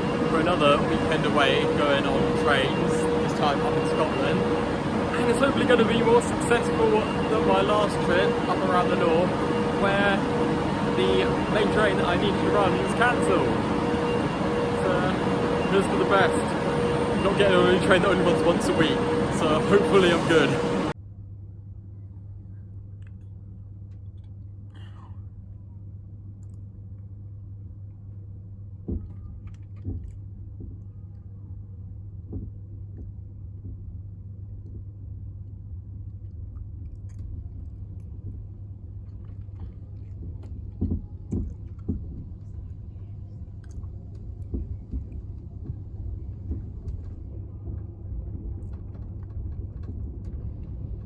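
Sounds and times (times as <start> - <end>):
train rumble and hum: 0.0 - 21.0, 37.0 - 51.0.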